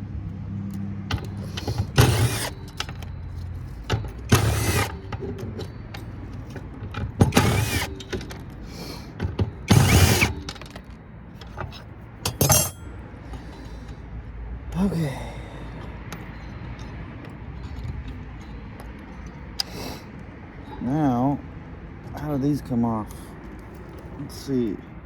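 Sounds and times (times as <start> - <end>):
power drill whirring: 1.1 - 3.1, 4.3 - 5.1, 7.2 - 8.2, 9.7 - 10.6.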